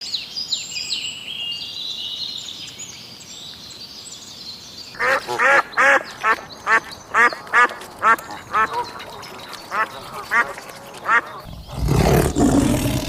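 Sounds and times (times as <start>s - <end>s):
birds chirping whistled notes: 0.0s - 13.0s
bird harsh calls: 4.9s - 13.0s.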